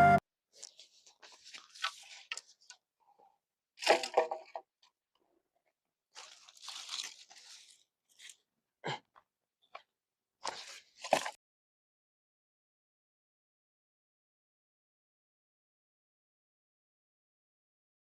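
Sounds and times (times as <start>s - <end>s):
crunching and rustling: 6.2s - 8.4s.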